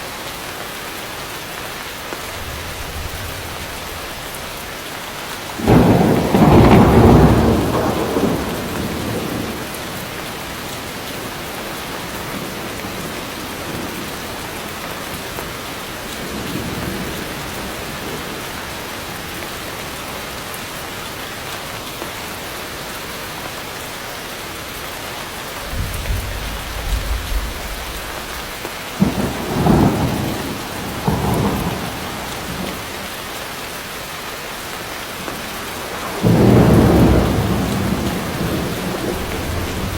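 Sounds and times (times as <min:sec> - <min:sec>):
heavy rain: 0:00.0 - 0:39.9
thunder: 0:02.3 - 0:04.6, 0:05.6 - 0:14.1, 0:25.6 - 0:33.0, 0:35.8 - 0:39.9.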